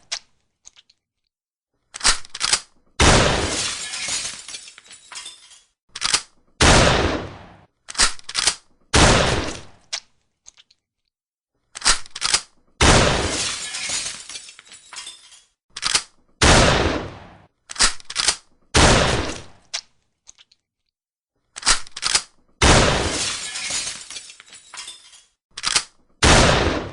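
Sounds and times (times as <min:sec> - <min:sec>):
shotgun blasts: 0:03.0 - 0:03.6, 0:06.6 - 0:07.7, 0:09.0 - 0:09.7, 0:12.8 - 0:13.4, 0:16.4 - 0:17.5, 0:18.8 - 0:19.6, 0:22.6 - 0:23.2, 0:26.2 - 0:26.9
shotgun action clicks: 0:05.9 - 0:06.4, 0:11.7 - 0:12.6, 0:15.7 - 0:16.2, 0:17.7 - 0:18.5, 0:21.6 - 0:22.4, 0:25.6 - 0:26.0.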